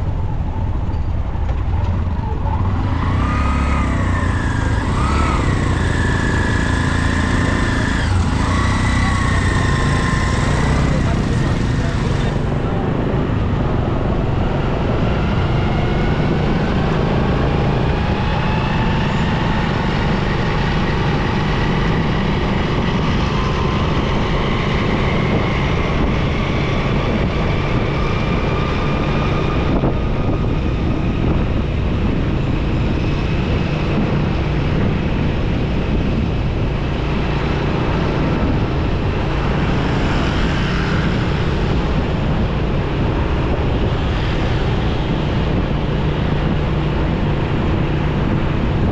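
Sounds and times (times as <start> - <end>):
motorcycle engine running: 0.0 - 14.6, 28.9 - 48.9
road and traffic noise: 0.0 - 48.9.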